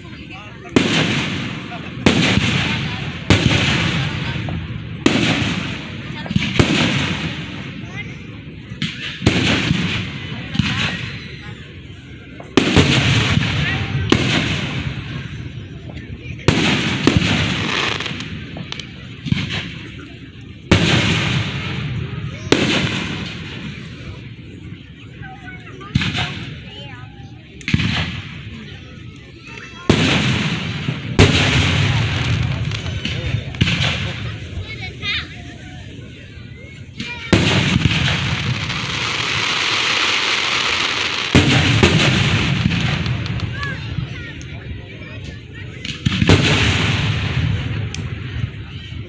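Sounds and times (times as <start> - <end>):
fireworks cracks: 0.0 - 11.7, 12.3 - 49.0
fireworks bangs: 0.0 - 49.0
fireworks crackling hiss: 0.0 - 49.0.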